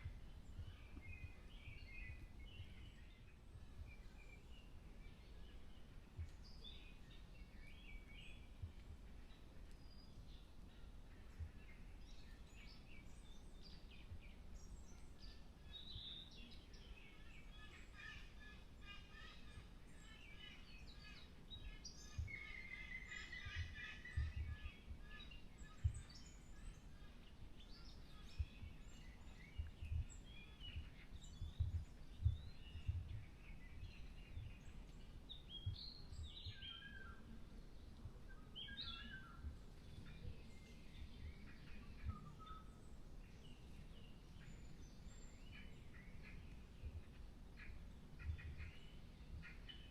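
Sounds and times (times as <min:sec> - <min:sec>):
birds singing and chirping: 0:00.0 - 0:49.9.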